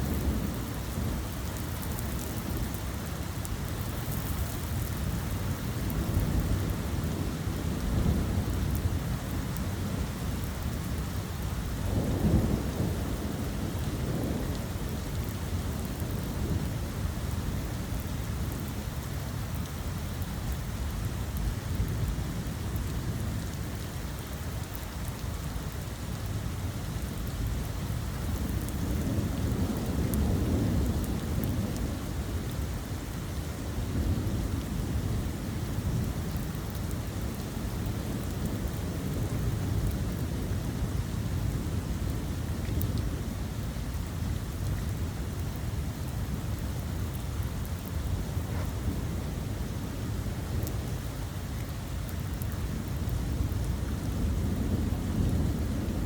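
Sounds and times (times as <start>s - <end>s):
steady rain falling: 0.0s - 56.0s
low rumbles of thunder: 5.0s - 19.1s, 27.3s - 56.0s.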